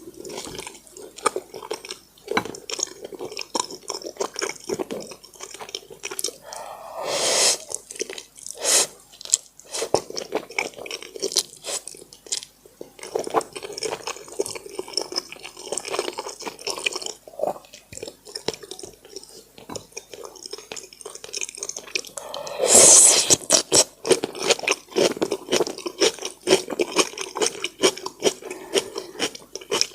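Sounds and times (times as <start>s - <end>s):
chewing with wet smacking: 0.0s - 6.6s, 7.7s - 8.6s, 9.2s - 22.4s, 23.3s - 29.9s
loud sucking noises: 6.5s - 7.7s, 8.6s - 8.9s, 22.2s - 23.5s.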